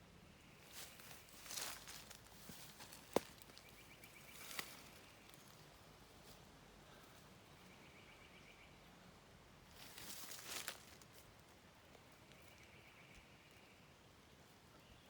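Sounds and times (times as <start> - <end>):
footsteps rustling: 0.6 - 5.6, 9.8 - 11.2.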